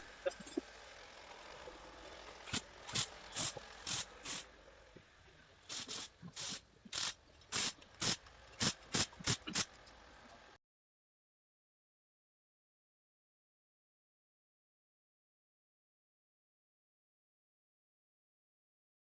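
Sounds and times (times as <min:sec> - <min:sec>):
mechanical clicks and clacks: 0:06.9 - 0:10.0.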